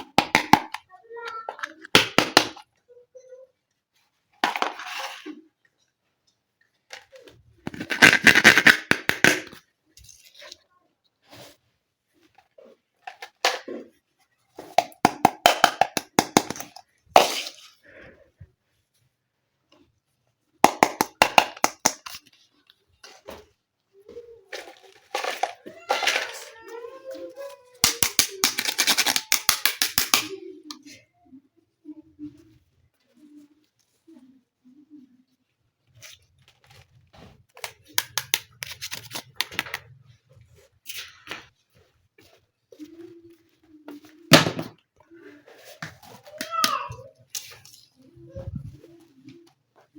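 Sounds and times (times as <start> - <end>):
plastic toy pieces clicking: 27.8 - 30.4, 37.6 - 39.8.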